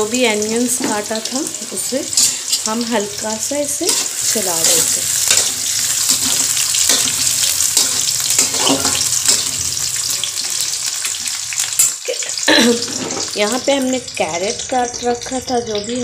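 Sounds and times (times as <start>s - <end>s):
onions sizzling in hot oil: 0.0s - 16.0s
spatula scraping a pan: 2.1s - 2.7s, 3.8s - 11.9s, 12.7s - 13.5s.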